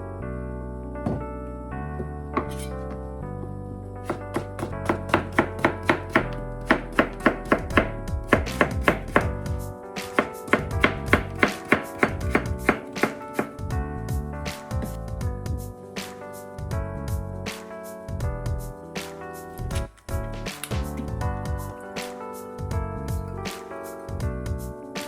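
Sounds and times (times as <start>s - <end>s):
background music: 0.0s - 25.0s
knife chopping on cutting board: 4.1s - 9.4s, 10.1s - 13.6s.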